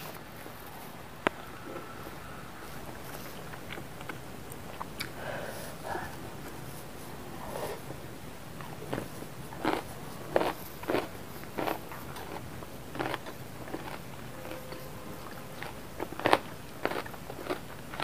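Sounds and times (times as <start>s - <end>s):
person crunching a vegetable stalk: 8.9s - 14.0s, 15.6s - 18.0s.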